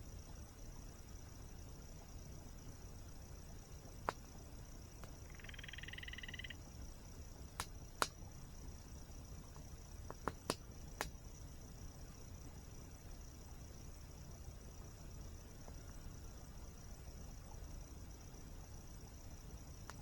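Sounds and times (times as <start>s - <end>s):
high insect drone: 0.0s - 20.0s
pulsed frog call: 5.2s - 6.6s
campfire wood crackling: 6.6s - 11.2s
fire sharp pops: 7.5s - 8.2s, 10.1s - 11.2s.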